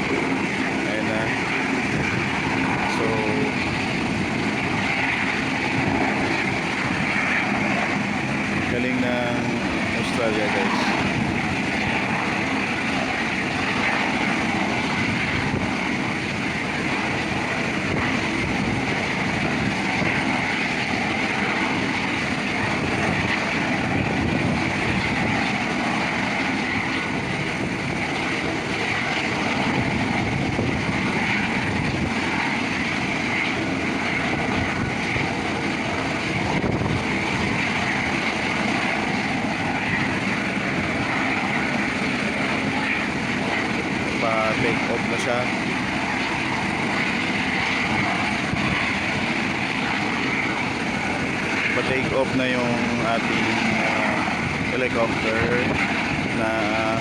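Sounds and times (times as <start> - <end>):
helicopter rotor noise: 0.0 - 57.0
helicopter turbine whine: 0.0 - 57.0.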